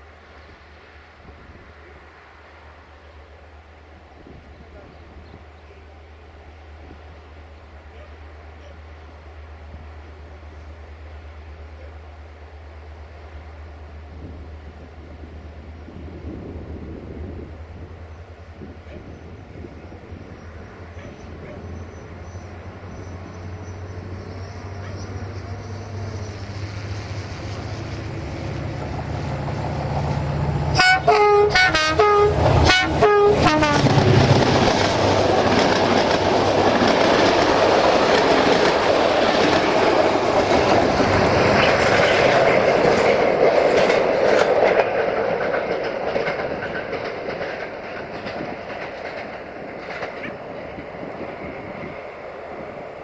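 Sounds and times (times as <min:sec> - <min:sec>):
diesel train engine drone: 0:00.0 - 0:53.0
train wheels on rails: 0:12.7 - 0:53.0
train horn blasts: 0:30.7 - 0:34.0.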